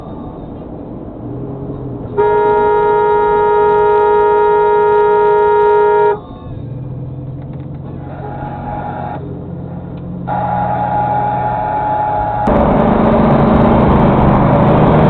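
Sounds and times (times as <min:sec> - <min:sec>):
moving car road noise: 0:00.0 - 0:15.0
car horn held: 0:02.2 - 0:06.2.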